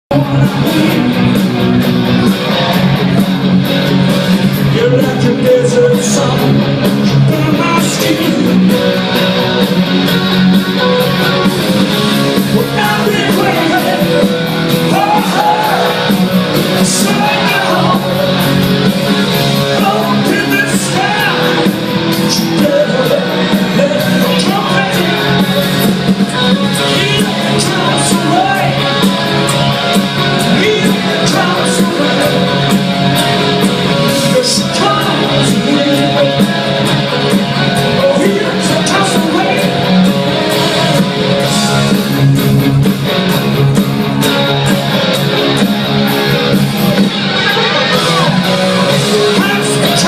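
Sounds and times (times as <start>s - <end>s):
person singing: 0.1s - 1.4s, 12.4s - 18.7s, 19.5s - 42.4s, 47.3s - 50.0s
rock band playing: 0.1s - 50.0s.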